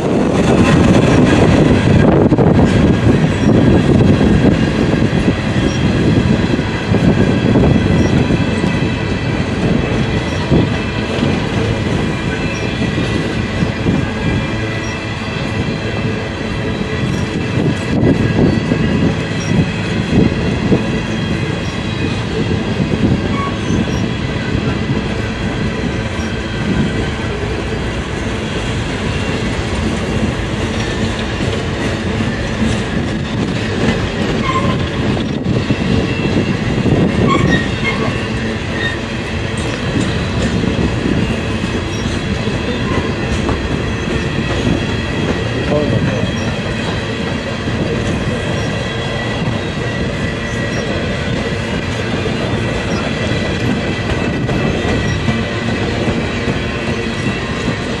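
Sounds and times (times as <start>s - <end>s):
freight train wheels rumbling: 0.0s - 58.0s
high wheel squeal: 5.2s - 6.2s, 7.5s - 20.2s, 23.2s - 24.8s, 34.3s - 57.7s.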